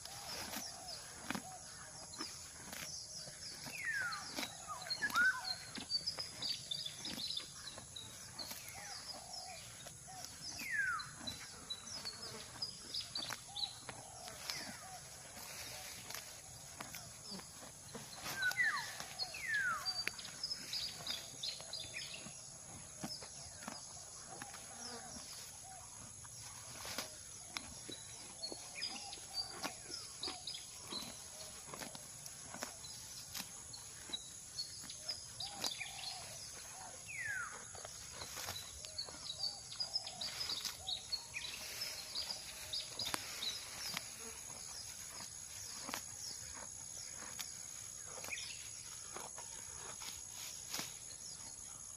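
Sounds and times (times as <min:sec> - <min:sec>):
cow tearing and chewing grass: 0:00.0 - 0:51.9
high insect drone: 0:37.1 - 0:51.8.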